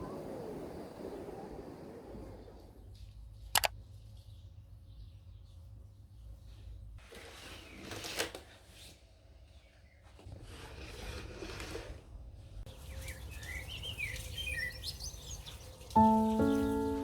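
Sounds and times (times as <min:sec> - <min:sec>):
small birds chirping: 0:12.7 - 0:17.0
soft piano music: 0:15.9 - 0:17.0.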